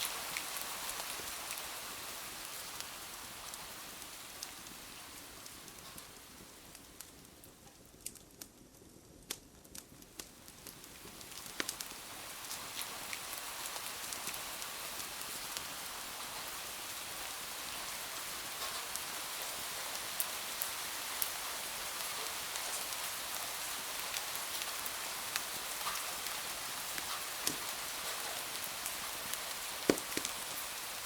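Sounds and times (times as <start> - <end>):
raindrop ticks: 9.2 - 12.9, 27.0 - 30.6
rain hissing: 10.3 - 31.0.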